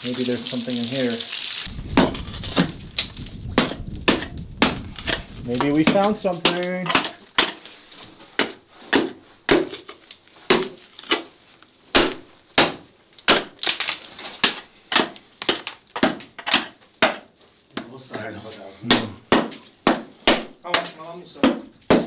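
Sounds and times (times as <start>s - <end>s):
hand tool striking rock: 1.9s - 7.7s, 8.3s - 11.3s, 11.9s - 13.8s, 14.4s - 22.0s.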